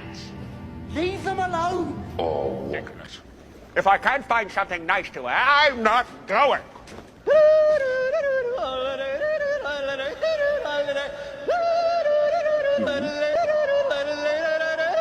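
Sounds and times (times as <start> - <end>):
two voices singing wordlessly: 7.2 - 15.0.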